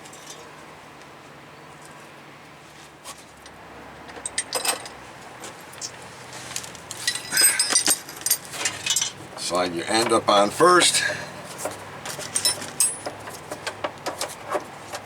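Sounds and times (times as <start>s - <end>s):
small metal parts clinking: 6.9s - 14.3s.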